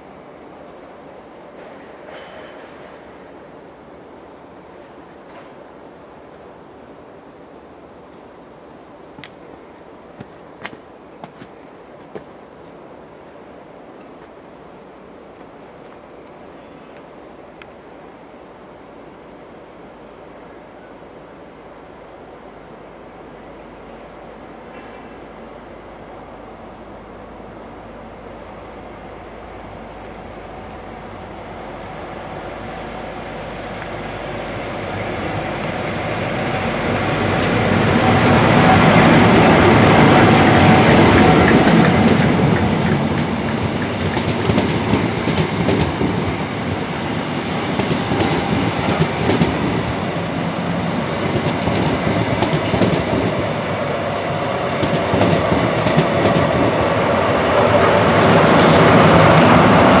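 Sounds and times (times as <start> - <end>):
diesel train passing at speed: 0.0 - 60.0.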